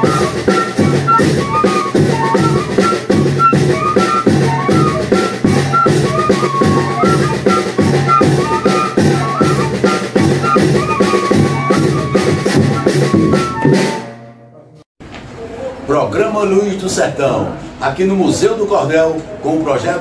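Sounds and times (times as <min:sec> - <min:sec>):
bass drum and snare beat: 0:00.0 - 0:14.1
fife melody: 0:00.0 - 0:14.8.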